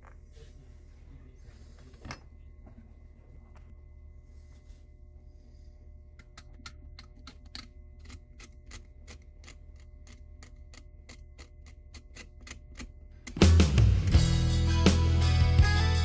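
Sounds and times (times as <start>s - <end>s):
faint hum: 0.0s - 16.0s
loud music: 13.4s - 16.0s.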